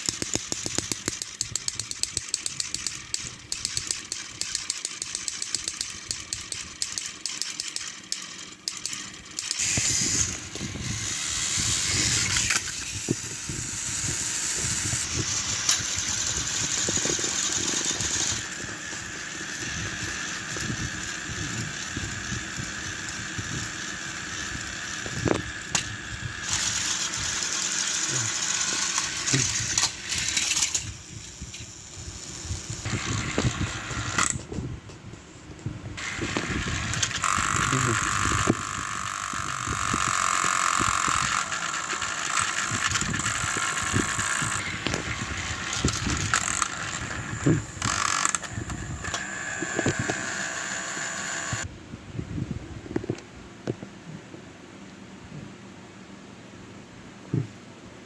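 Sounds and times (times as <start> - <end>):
rapid clicking: 0.0 - 34.4
toy train wheels rattling on track: 0.0 - 34.5, 36.0 - 51.7
toy train motors whirring: 0.0 - 34.6, 36.0 - 51.7.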